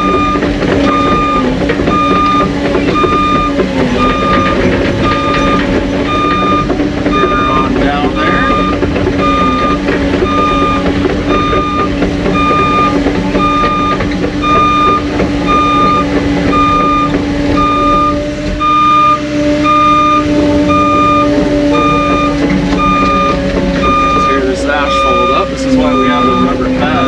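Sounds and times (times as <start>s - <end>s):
diesel engine running: 0.0s - 27.0s
reverse alarm beeping: 0.0s - 27.0s.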